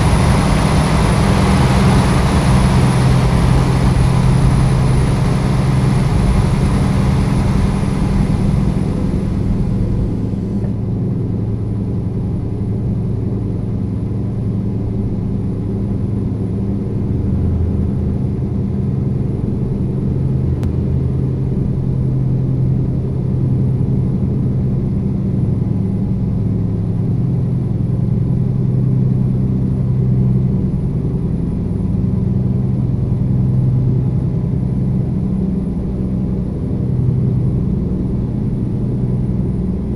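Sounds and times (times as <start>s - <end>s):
truck diesel engine droning: 0.0s - 10.8s.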